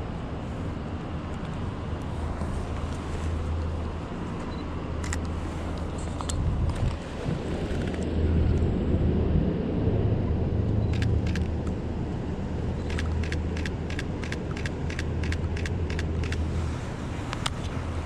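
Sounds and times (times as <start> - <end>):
city traffic rumble: 0.0 - 18.0
camera shutter clicking: 12.9 - 16.4.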